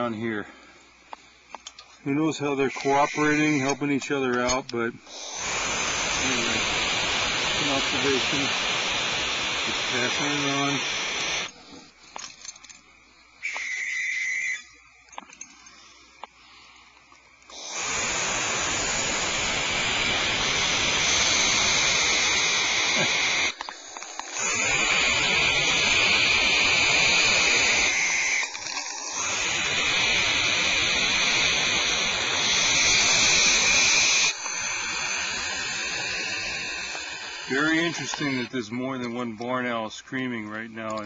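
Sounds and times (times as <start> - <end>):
owls screeching: 2.1 - 11.5, 13.4 - 14.8, 17.5 - 39.2.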